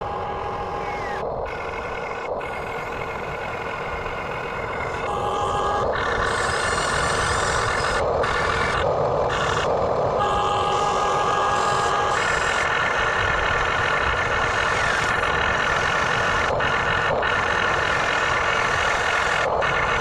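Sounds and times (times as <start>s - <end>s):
toy excavator mechanical whine: 0.0s - 20.0s.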